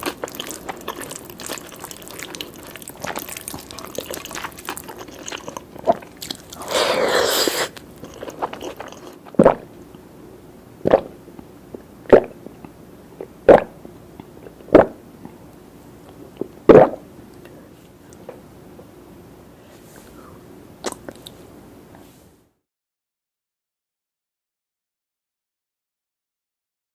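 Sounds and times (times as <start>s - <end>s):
close eating sounds: 0.0s - 10.1s, 19.8s - 22.1s
mouth smacks: 12.1s - 15.4s, 16.4s - 17.5s, 20.8s - 21.4s.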